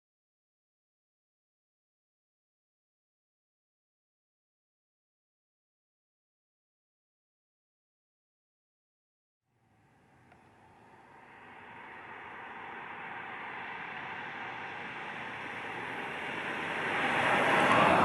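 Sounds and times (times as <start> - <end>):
vehicle passing by: 10.0 - 18.0.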